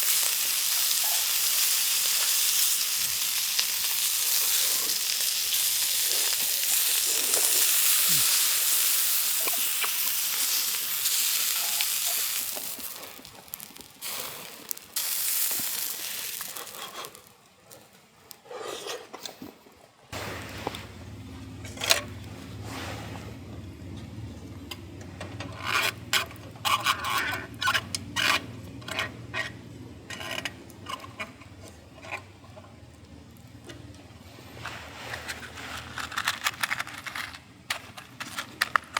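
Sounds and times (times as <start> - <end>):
food sizzling in a pan: 0.0 - 17.3
utensils clinking against cookware: 9.3 - 13.2
steady low hum: 20.2 - 30.2.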